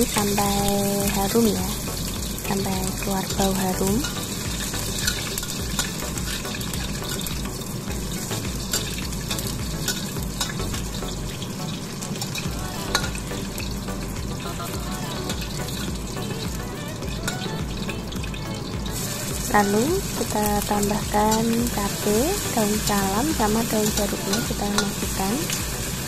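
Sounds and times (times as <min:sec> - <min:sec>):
shallots and garlic sizzling in oil: 0:00.0 - 0:26.0
metal spatula scraping a wok: 0:04.0 - 0:11.3.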